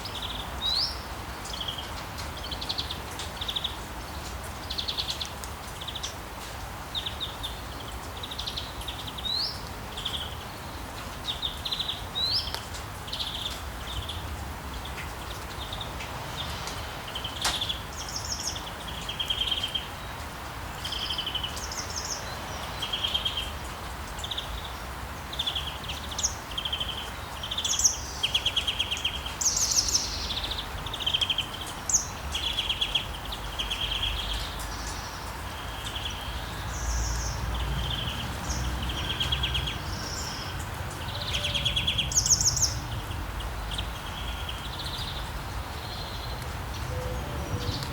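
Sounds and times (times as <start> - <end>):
rain hiss: 0.0 - 47.9
songbirds chirping trills: 6.9 - 47.9.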